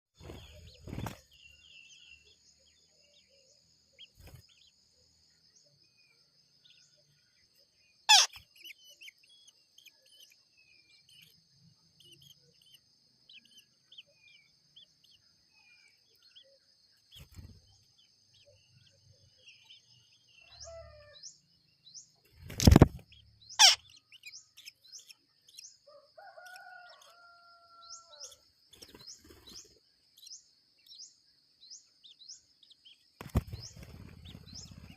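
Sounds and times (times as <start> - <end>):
bird chirps: 0.2 - 34.9.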